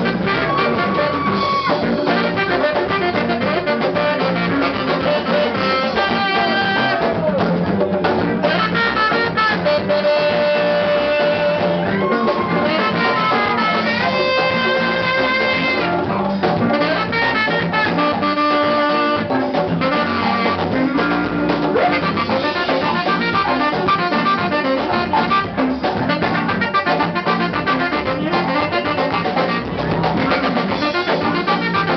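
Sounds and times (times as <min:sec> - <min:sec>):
horns holding long notes: 0:00.0 - 0:07.0, 0:08.4 - 0:16.0
live band playing: 0:00.0 - 0:31.9.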